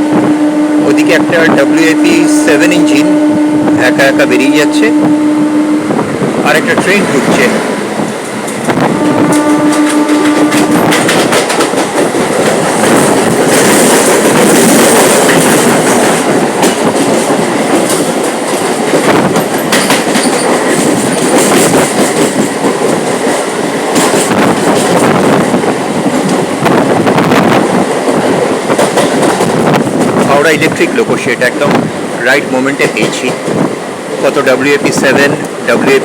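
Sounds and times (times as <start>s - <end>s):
train running noise: 0.0s - 36.0s
wheels clattering over rail joints: 9.8s - 25.1s.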